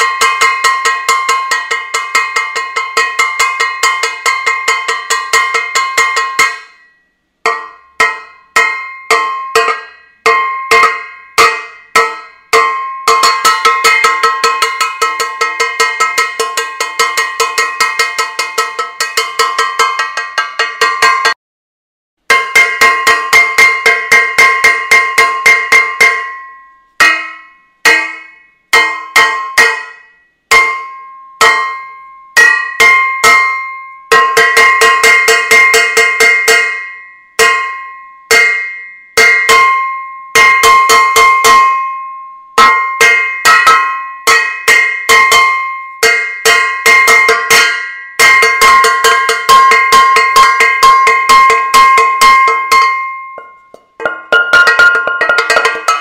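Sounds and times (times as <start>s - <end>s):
metal saucepan banging: 7.5s - 21.4s, 42.6s - 56.0s.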